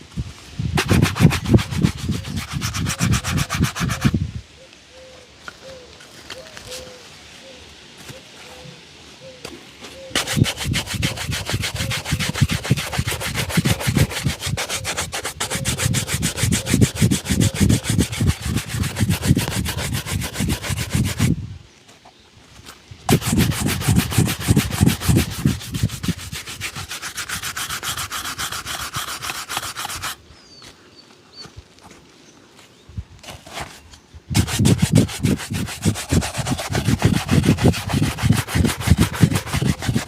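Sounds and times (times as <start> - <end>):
shoe being buffed: 0.8 - 4.2, 10.1 - 21.3, 23.1 - 30.2, 34.3 - 40.0.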